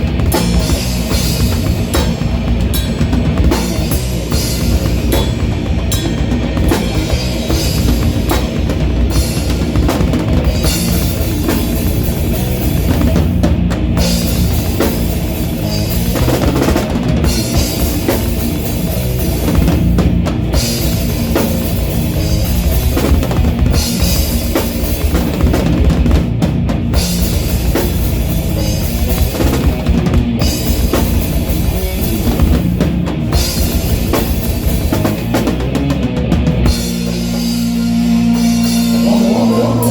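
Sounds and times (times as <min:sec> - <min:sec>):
bass drum beating: 0:00.0 - 0:39.9
rock band playing live: 0:00.0 - 0:39.9.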